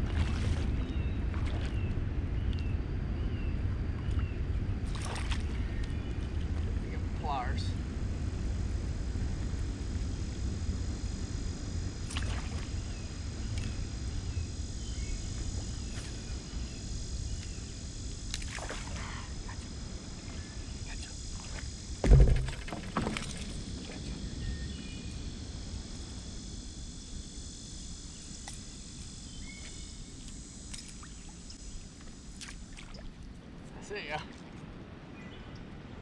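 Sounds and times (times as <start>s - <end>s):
water sloshing against board: 0.0s - 1.8s, 4.8s - 6.7s, 21.0s - 24.1s
steady low rumble: 0.0s - 33.9s
loud thump: 22.0s - 23.5s.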